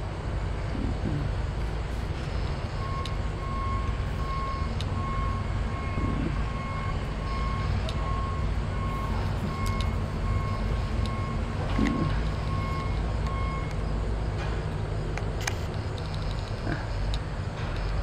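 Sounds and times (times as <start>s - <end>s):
low engine rumble: 0.0s - 18.0s
reversing alarm beeping: 2.2s - 14.1s.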